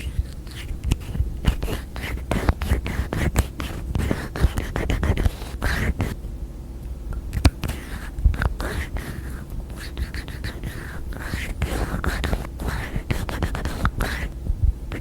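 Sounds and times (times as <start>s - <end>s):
soft rubbing: 0.0s - 6.2s.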